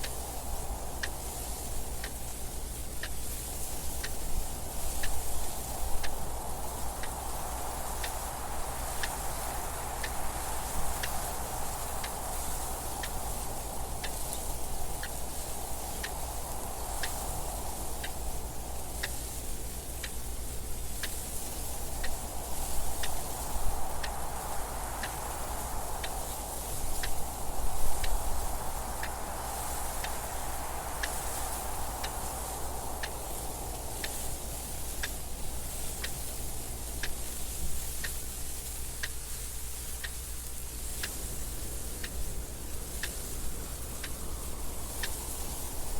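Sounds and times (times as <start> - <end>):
wind noise: 0.0 - 45.9
clock ticking: 1.0 - 2.2, 21.0 - 27.3, 28.0 - 30.4, 31.0 - 38.3, 42.0 - 45.7.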